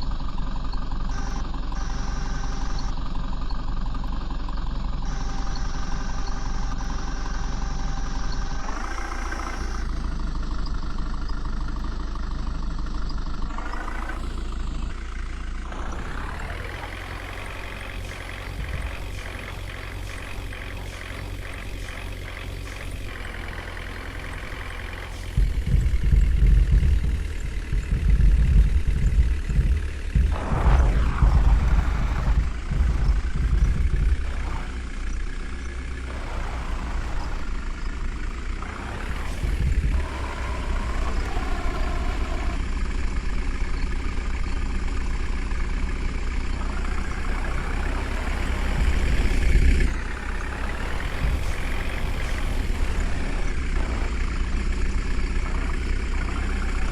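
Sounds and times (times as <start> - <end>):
diesel engine working under load: 0.0 - 56.9.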